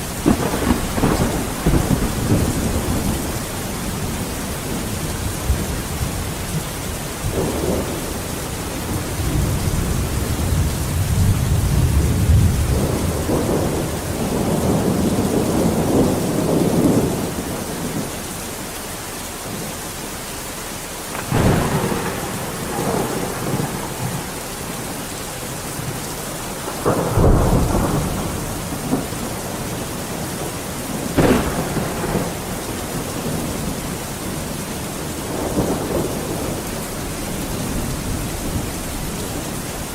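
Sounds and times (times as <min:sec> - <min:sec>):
rolling thunder rumble: 0:00.0 - 0:18.2, 0:21.1 - 0:39.9
heavy rain: 0:00.0 - 0:39.9
sharp thunder cracks: 0:00.2 - 0:05.8, 0:21.1 - 0:34.5.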